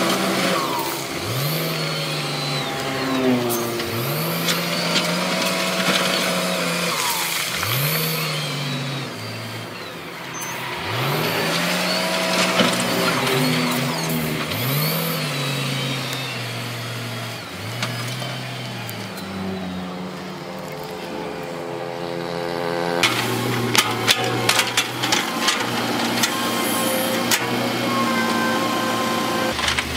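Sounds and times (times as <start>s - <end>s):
diesel engine revving: 0.0s - 29.9s
scraping: 10.3s - 19.3s, 22.6s - 29.9s
metal clanks: 23.0s - 28.4s.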